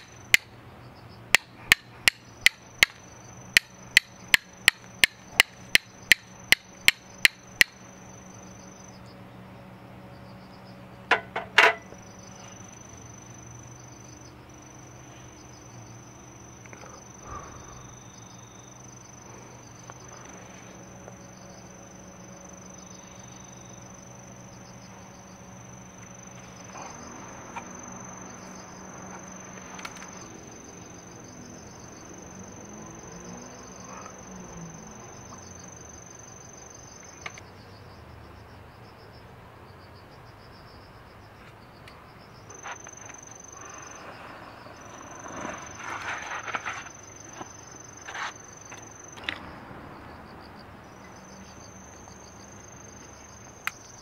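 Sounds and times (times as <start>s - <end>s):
insect trilling: 10.1s - 38.8s, 41.3s - 54.0s.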